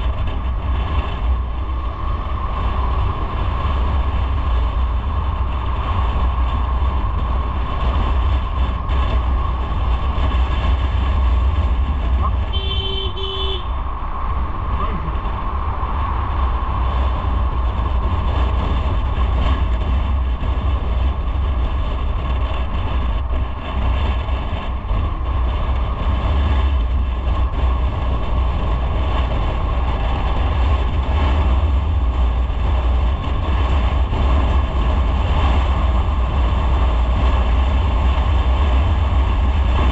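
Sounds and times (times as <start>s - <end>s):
motorcycle engine rumble: 0.0s - 39.9s
road noise: 0.0s - 39.9s
wind noise: 0.0s - 39.9s
vehicle horn: 12.3s - 13.8s.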